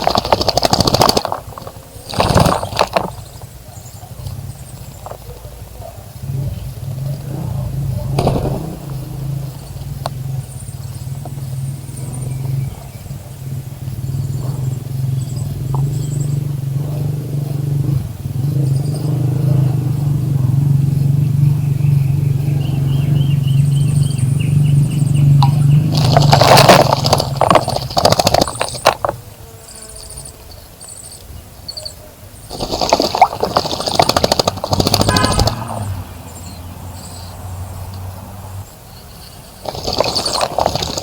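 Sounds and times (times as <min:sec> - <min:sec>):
bird chirps: 0:01.6 - 0:28.9, 0:29.7 - 0:38.1
motor engine humming: 0:06.2 - 0:29.2, 0:32.5 - 0:36.9.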